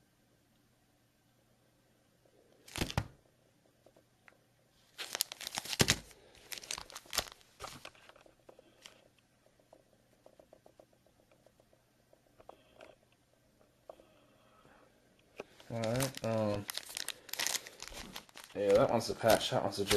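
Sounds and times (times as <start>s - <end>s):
packaging tearing and crinkling: 4.9s - 8.2s, 15.6s - 19.9s.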